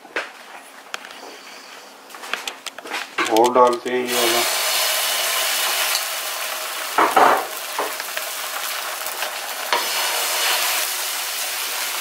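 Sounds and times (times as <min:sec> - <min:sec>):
batter sizzling in butter: 0:04.1 - 0:12.0.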